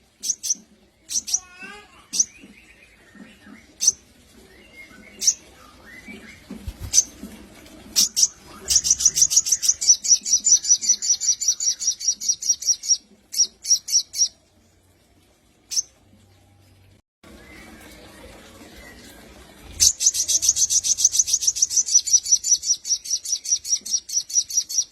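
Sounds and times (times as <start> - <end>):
bird chirping and trilling: 0.2 - 7.2, 8.0 - 14.4, 15.7 - 16.0, 19.8 - 24.9.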